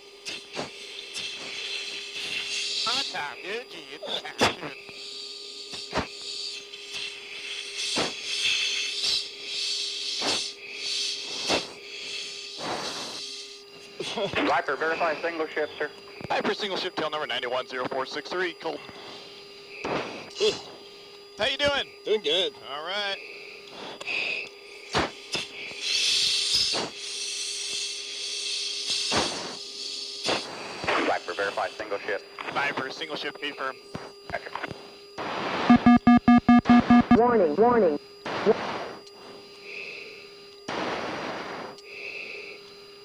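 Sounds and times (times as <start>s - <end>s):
steady hum: 0.0s - 43.0s
intercom hissing rush: 0.3s - 4.8s, 14.0s - 16.8s, 30.3s - 33.6s, 35.2s - 39.0s
forceful breaths into mask microphone: 6.9s - 13.5s, 18.9s - 20.9s
hissing air: 24.9s - 30.9s.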